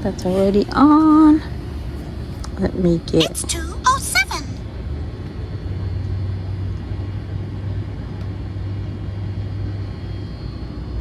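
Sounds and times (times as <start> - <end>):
air conditioner humming: 0.0 - 4.7.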